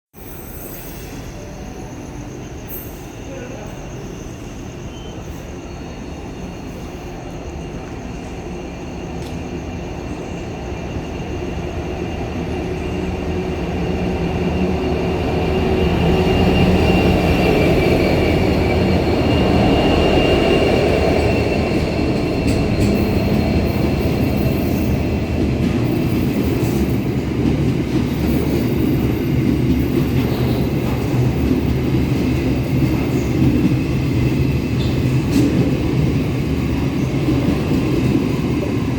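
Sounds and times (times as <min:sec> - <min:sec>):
high wheel squeal: 0:00.2 - 0:07.4
freight train passing: 0:00.2 - 0:38.9.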